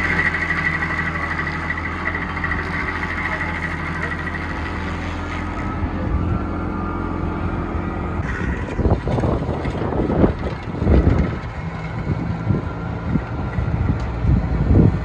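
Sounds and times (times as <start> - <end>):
stump grinder grinding: 0.0 - 12.5
excavator engine drone: 0.0 - 15.0.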